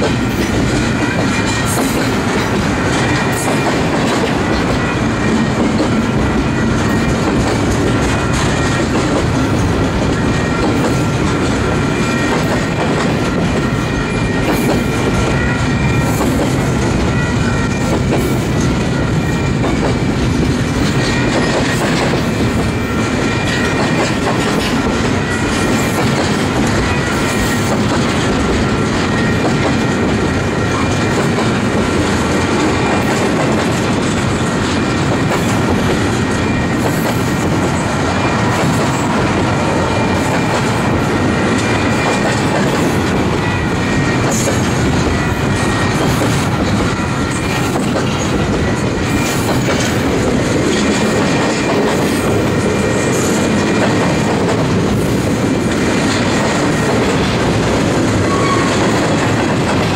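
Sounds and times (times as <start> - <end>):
train rumbling: 0.0 - 59.9
faint high wheel squeal: 58.2 - 58.9.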